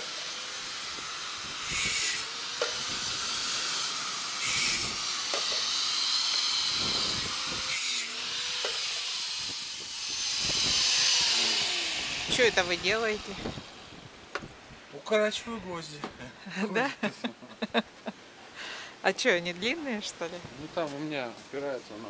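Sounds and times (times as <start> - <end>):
hissing wind gusts: 0.0 - 21.8
wind buffeting microphone: 2.8 - 3.5, 6.6 - 7.7, 9.3 - 14.9.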